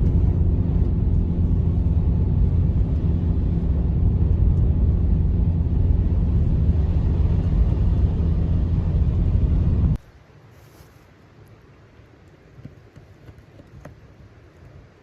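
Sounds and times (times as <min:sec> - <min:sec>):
loud low rumble: 0:00.0 - 0:10.0.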